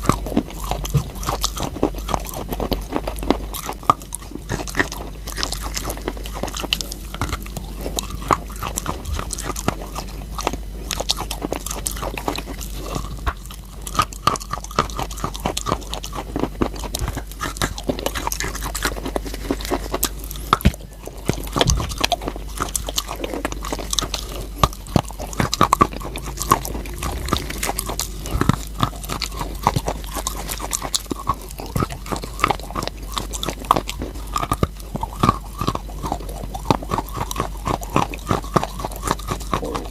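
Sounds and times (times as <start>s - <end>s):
person chewing crunchy chalk: 0.0s - 39.9s.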